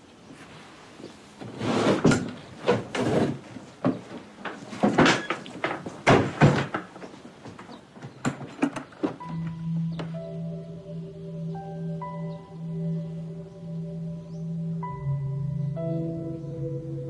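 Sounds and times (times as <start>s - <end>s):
cupboard doors and drawers rummaged: 1.4s - 9.3s
soft sustained music tones: 9.2s - 17.0s.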